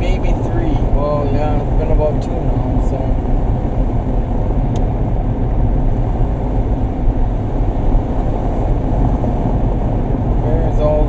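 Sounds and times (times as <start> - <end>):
van engine and tyre rumble: 0.0 - 11.0.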